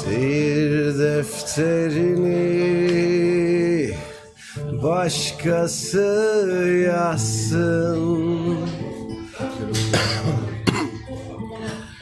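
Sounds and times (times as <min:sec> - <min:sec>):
acoustic guitar playing: 0:00.0 - 0:12.0
person singing: 0:00.0 - 0:12.0
singer coughing: 0:09.7 - 0:11.9.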